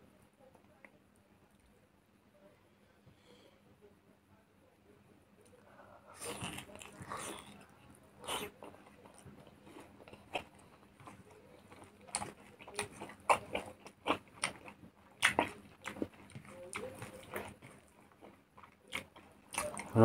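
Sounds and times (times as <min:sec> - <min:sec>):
person chewing with wet smacks: 0:06.2 - 0:20.0.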